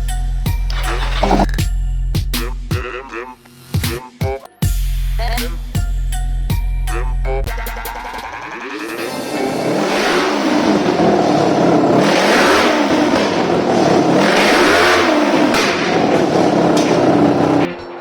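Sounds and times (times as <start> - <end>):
motorcycle engine revving: 1.1 - 1.6, 9.3 - 17.7.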